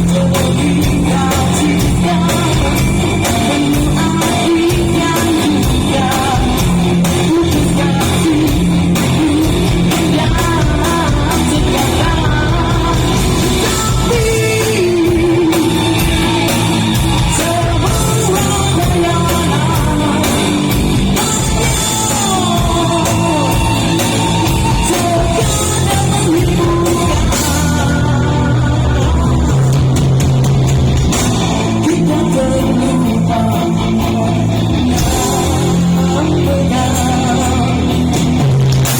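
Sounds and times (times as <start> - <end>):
guitar accompaniment: 0.0 - 38.9
man singing rock song: 0.0 - 38.9.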